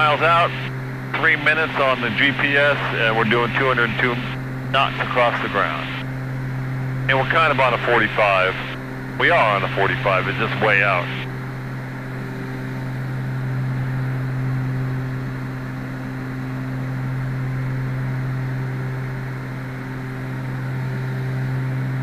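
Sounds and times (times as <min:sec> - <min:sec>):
propeller aircraft engines droning: 0:00.0 - 0:22.0.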